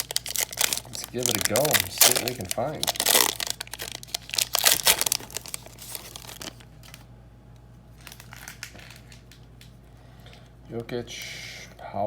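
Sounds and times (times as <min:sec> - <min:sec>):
plastic wrapper tearing and crinkling: 0:00.0 - 0:07.1, 0:08.0 - 0:09.7.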